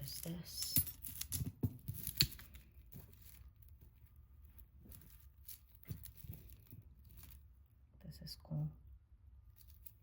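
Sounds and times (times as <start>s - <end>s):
jewelry clicking: 0.0s - 3.4s.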